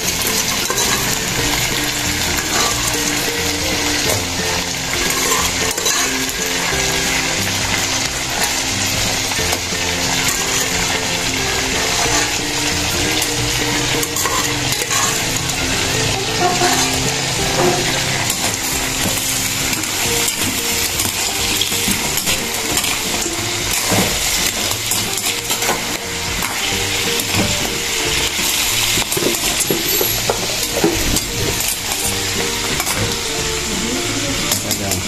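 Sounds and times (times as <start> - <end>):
utensil stirring and clicking on pan: 0.0 - 33.8
food sizzling in a pan: 0.0 - 35.0.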